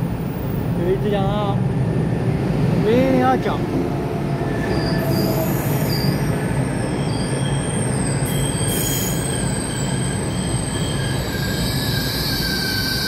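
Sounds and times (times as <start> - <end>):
high squeals: 4.5 - 13.0.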